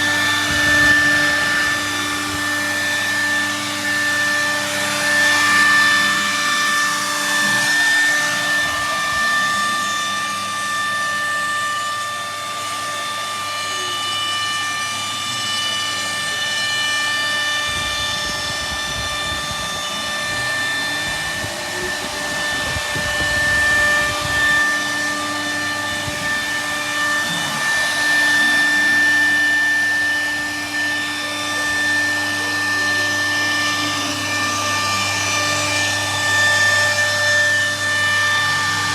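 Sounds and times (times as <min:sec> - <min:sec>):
router spindle whining while milling wood: 0:00.0 - 0:38.9.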